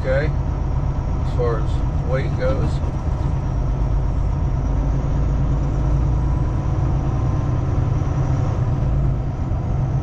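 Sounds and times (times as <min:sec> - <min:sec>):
truck engine and road noise: 0:00.0 - 0:10.0.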